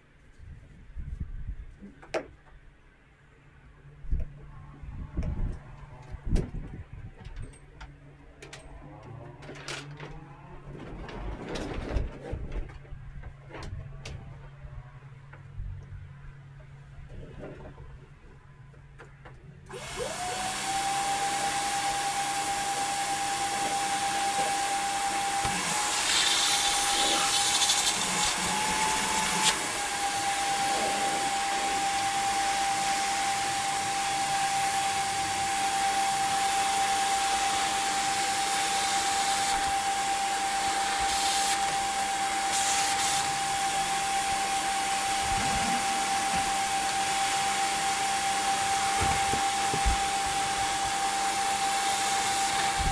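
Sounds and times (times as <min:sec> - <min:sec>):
vacuum motor high whine: 0:19.7 - 0:52.9.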